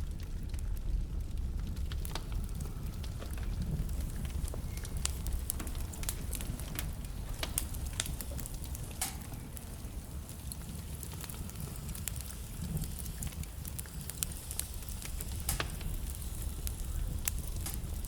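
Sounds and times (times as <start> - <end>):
logs crackling and popping: 0.0 - 18.0
low rumble of flames: 0.0 - 18.0.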